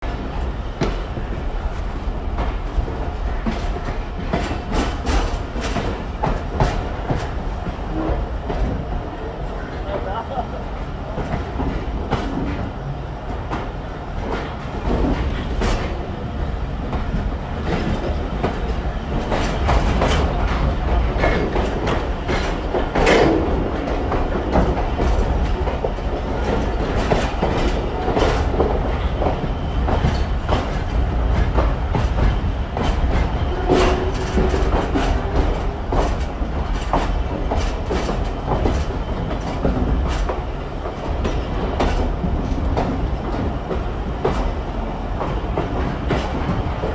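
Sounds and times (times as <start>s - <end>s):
train rumbling at speed: 0.0s - 46.9s
wheels clicking over rail joints: 16.9s - 44.6s.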